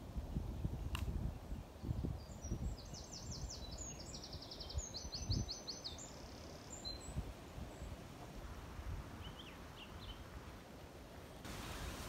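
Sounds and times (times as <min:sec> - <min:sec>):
songbird singing: 0:00.4 - 0:08.3, 0:09.1 - 0:10.4.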